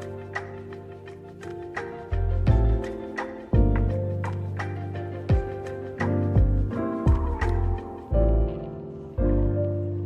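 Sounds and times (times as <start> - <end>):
electronic beat with deep bass: 1.8 - 8.4.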